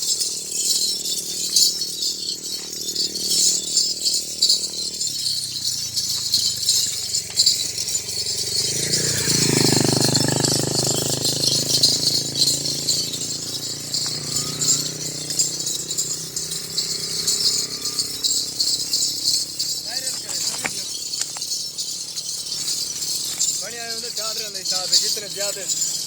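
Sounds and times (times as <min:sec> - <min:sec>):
small bells jingling: 0:00.0 - 0:26.0.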